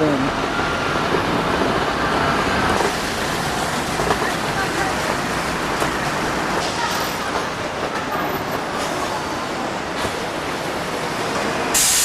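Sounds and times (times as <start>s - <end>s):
train wheels on track: 0.0s - 12.0s.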